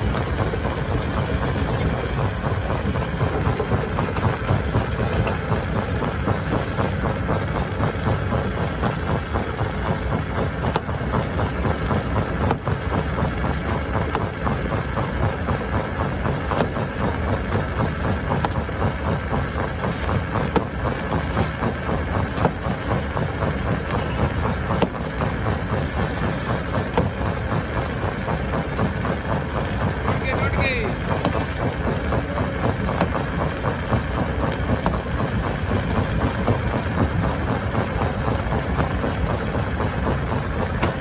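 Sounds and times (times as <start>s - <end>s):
stone crusher machinery running: 0.0s - 41.0s
sharp mechanical knocks: 12.4s - 12.7s, 16.5s - 16.9s, 24.0s - 25.0s, 32.9s - 33.3s.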